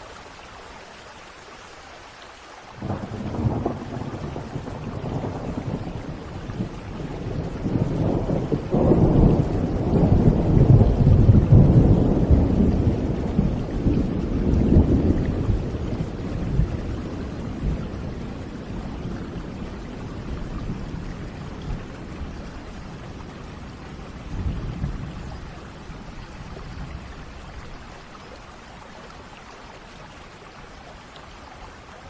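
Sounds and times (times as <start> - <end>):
steady rain: 0.0 - 32.0
thunder rumbling: 2.8 - 27.7.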